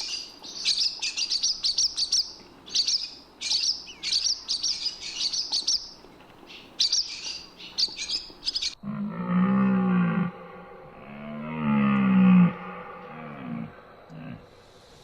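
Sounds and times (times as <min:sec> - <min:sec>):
bird chirping: 0:00.0 - 0:08.8
low buzzy animal call: 0:08.8 - 0:14.6.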